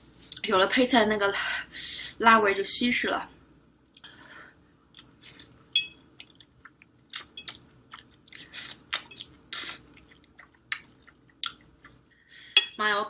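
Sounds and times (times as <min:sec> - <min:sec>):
person chewing noodles: 0:06.2 - 0:12.0.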